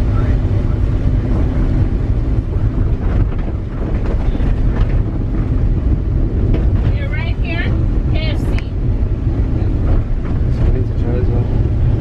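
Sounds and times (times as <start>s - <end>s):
steady low rumble: 0.0s - 12.0s
wind buffeting microphone: 0.0s - 12.0s.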